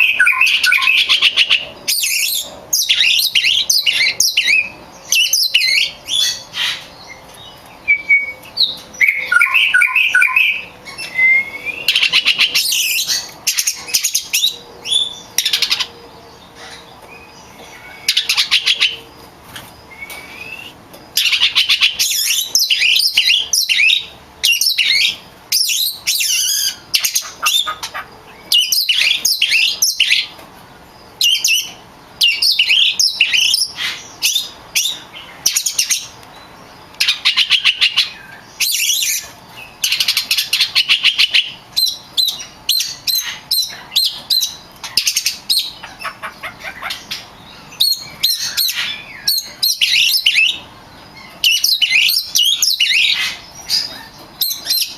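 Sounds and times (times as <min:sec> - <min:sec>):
bird singing: 0:00.0 - 0:54.9.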